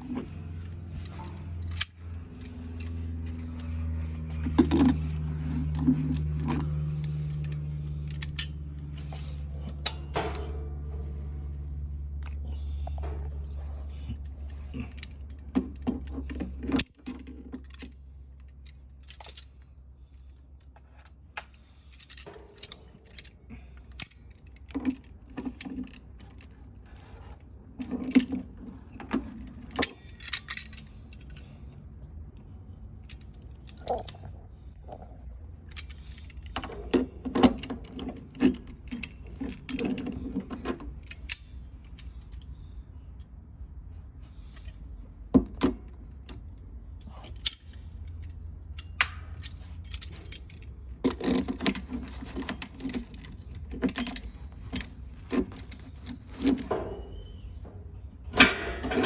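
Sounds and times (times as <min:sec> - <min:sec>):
steady low hum: 0:00.0 - 0:59.0
metallic clinks of hand tools: 0:00.4 - 0:19.6, 0:45.6 - 0:59.0.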